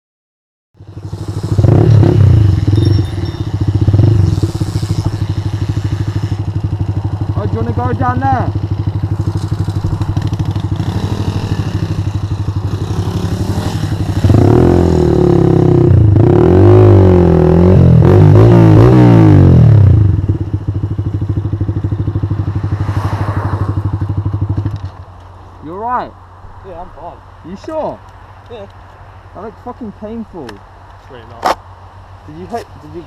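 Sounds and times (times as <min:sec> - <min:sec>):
motorcycle engine idling: 0:00.8 - 0:14.2, 0:20.0 - 0:22.8
motorcycle engine revving: 0:00.8 - 0:25.0.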